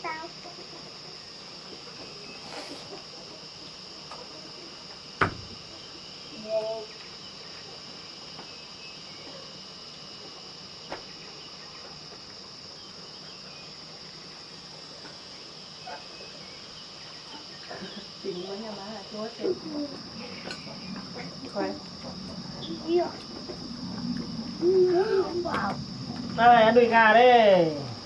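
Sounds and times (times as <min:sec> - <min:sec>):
insects chirring: 0:00.0 - 0:28.0
sharp knock: 0:05.2 - 0:05.6.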